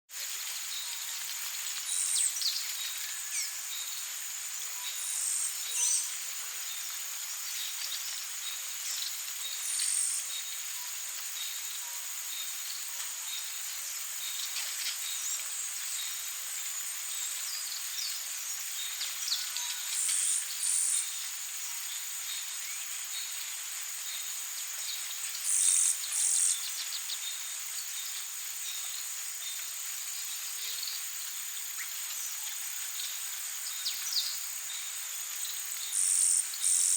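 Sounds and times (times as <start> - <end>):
high-pitched insect drone: 8.8 - 36.9.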